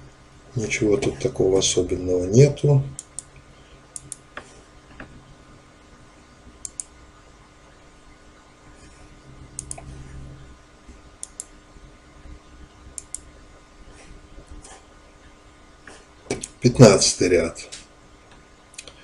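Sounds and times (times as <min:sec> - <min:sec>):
faint steady hum: 0:00.0 - 0:19.0
computer mouse clicks: 0:02.9 - 0:03.4, 0:04.0 - 0:05.1, 0:06.6 - 0:06.9, 0:09.6 - 0:09.9, 0:11.2 - 0:11.5, 0:13.0 - 0:13.3, 0:16.3 - 0:16.6.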